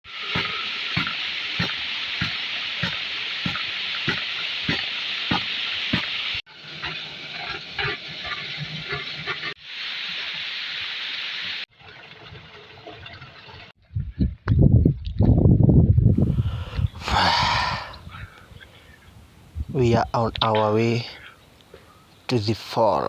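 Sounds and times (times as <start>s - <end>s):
rushing water: 0.0s - 13.7s, 17.0s - 18.9s.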